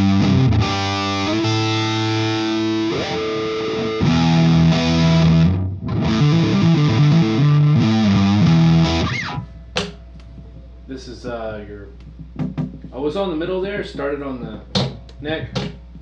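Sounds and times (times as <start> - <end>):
fuzz electric guitar chords: 0.0 - 9.8.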